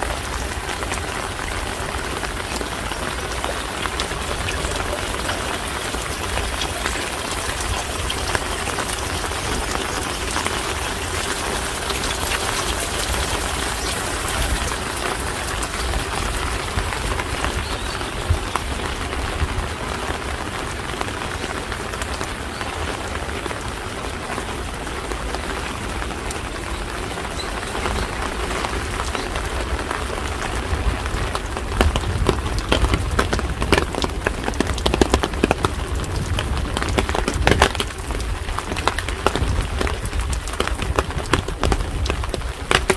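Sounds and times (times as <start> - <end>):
steady rain: 0.0 - 42.9.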